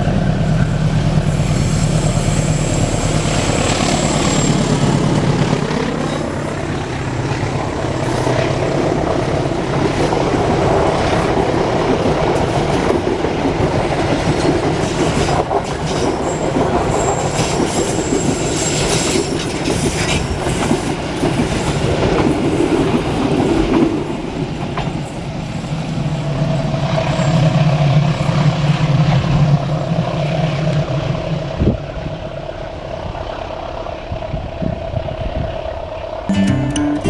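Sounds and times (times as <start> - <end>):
train wheels clattering on rails: 1.4 - 26.0.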